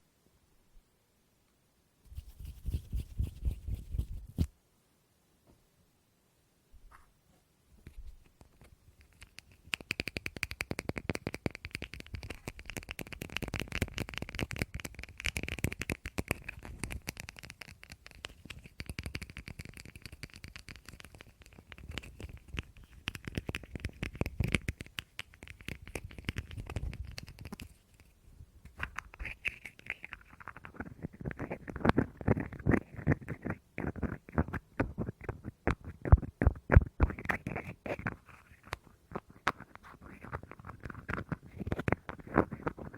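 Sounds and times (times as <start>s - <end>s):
light scratching: 2.1s - 4.5s
fast tapping on objects: 8.6s - 27.8s, 28.7s - 42.9s.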